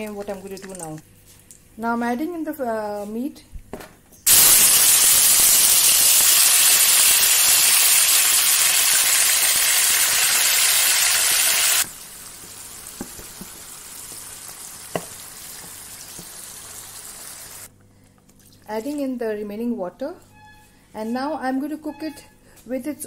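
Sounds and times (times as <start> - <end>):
meat sizzling in hot oil: 4.3 - 17.7.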